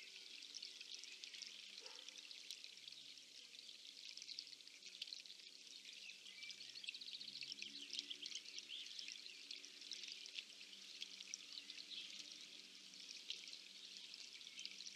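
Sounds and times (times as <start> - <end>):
water trickling and splashing: 0.0 - 14.9.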